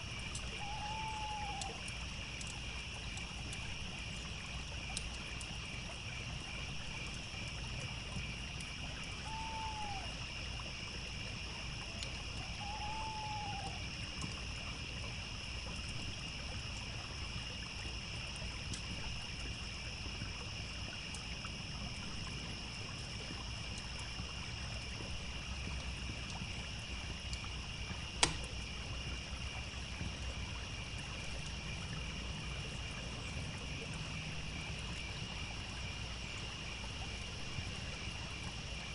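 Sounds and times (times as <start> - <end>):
crickets chirring: 0.0 - 38.9
trickling stream: 0.0 - 38.9
campfire pop: 27.3 - 28.8.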